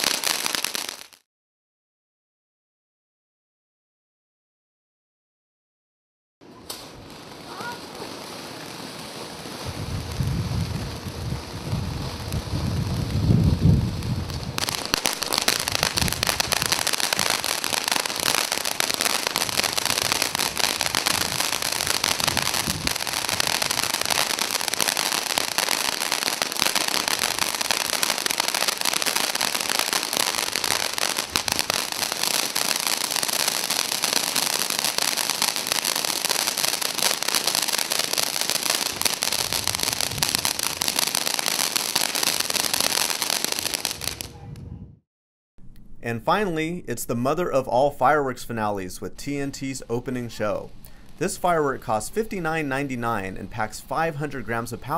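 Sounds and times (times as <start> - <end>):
firework fountain hissing and crackling: 0.0 - 1.2, 6.6 - 44.4.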